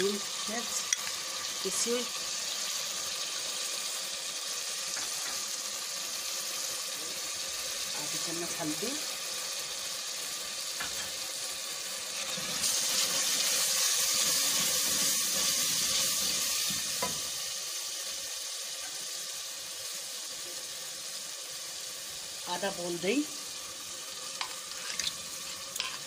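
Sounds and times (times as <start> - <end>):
masala sizzling in oil: 0.0 - 26.0.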